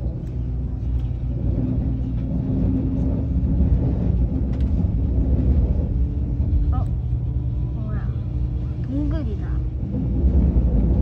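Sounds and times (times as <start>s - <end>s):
faint steady hum: 0.0s - 11.0s
train running rumble: 0.0s - 11.0s.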